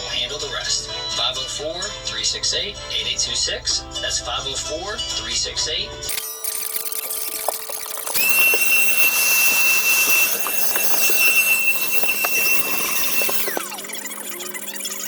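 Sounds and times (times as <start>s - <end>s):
power tool motor whine: 6.1s - 15.0s.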